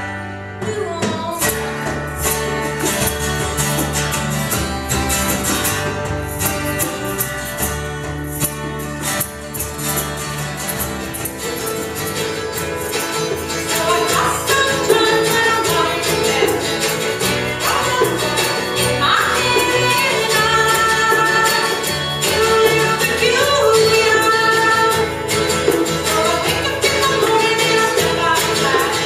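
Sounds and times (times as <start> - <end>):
strummed acoustic guitars: 0.0 - 29.0
person singing: 11.4 - 29.0.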